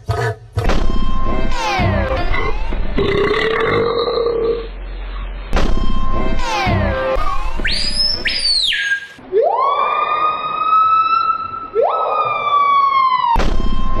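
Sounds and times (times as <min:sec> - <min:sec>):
loud siren-like wail: 0:09.3 - 0:14.0.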